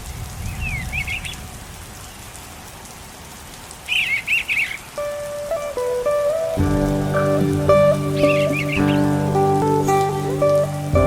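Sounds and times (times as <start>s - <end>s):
steady rain: 0.0s - 11.0s
birds chirping: 3.9s - 11.0s
melody of held notes: 5.0s - 11.0s.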